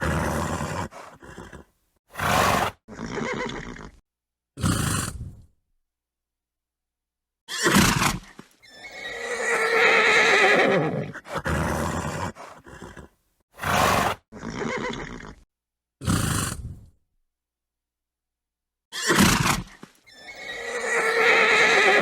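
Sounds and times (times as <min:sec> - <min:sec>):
horse snorting: 0:00.0 - 0:04.0, 0:04.6 - 0:05.5, 0:07.6 - 0:15.4, 0:16.0 - 0:16.9
horse whinnying: 0:00.0 - 0:04.0, 0:07.5 - 0:15.4, 0:18.9 - 0:22.0.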